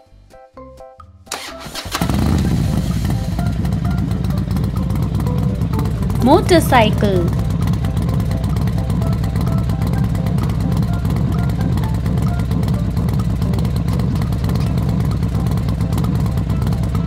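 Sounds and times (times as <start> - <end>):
motorcycle engine rumbling: 1.4 - 17.0.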